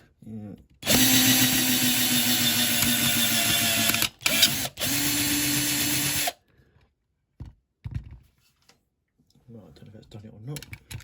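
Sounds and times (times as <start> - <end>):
electric drill drilling: 0.8 - 6.4.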